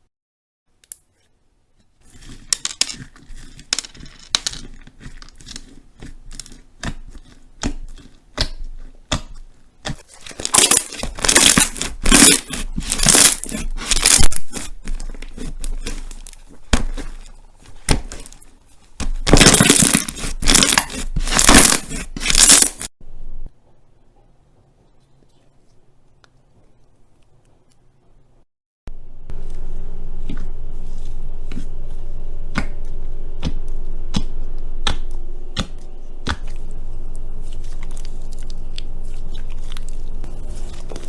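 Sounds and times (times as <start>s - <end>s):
slime crackling and popping: 2.2s - 22.9s.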